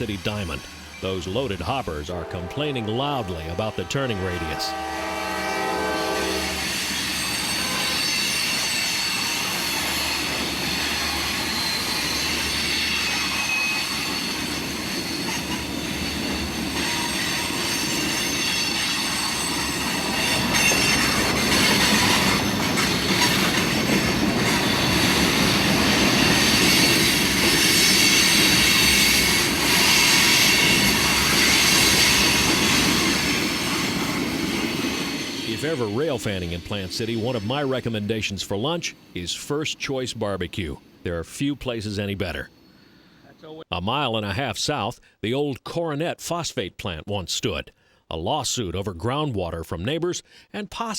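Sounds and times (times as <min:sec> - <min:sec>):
rolling rumble of train: 0:00.0 - 0:39.2, 0:40.6 - 0:41.0
train wheels squealing on curve: 0:02.3 - 0:37.8.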